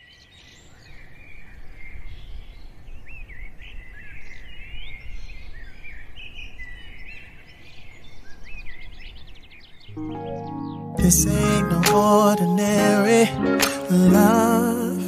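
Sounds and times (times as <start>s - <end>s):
birds chirping: 7.5s - 12.4s.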